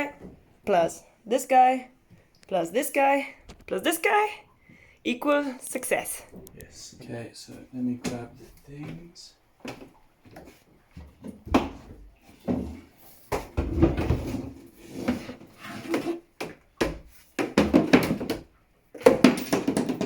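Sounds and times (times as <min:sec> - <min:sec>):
hollow wooden knocks: 0:15.9 - 0:20.0.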